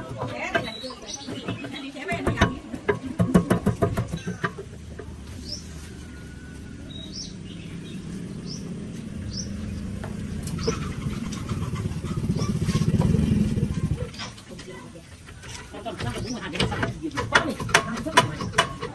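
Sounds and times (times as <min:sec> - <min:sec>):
birds chirping: 0:00.0 - 0:18.9
low engine rumble: 0:00.0 - 0:18.9.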